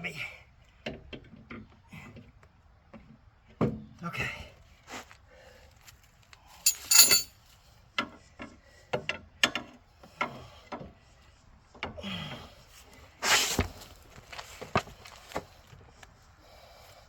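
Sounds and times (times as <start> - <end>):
metal scraping clatter: 6.7 - 7.3.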